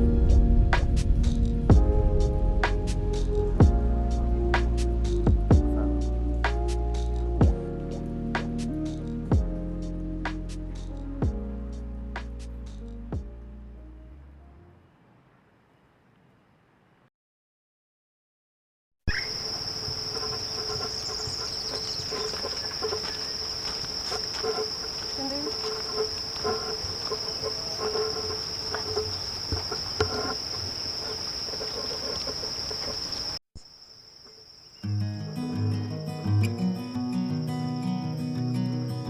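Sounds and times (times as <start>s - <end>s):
crickets trilling: 19.1s - 39.0s.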